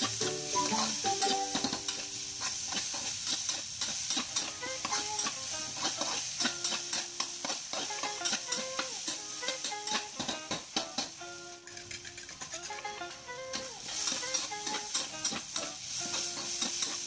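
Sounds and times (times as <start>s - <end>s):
vegetables sizzling in oil: 0.0s - 17.0s
metal spatula scraping pan: 0.6s - 9.2s, 13.9s - 17.0s.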